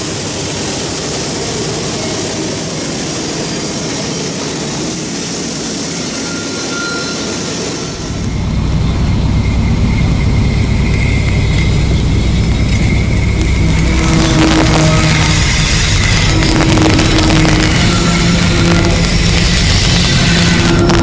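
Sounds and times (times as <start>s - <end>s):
deep locomotive engine rumble: 0.0s - 21.0s
steady rushing noise: 0.0s - 21.0s
faint high squeal: 5.9s - 16.3s.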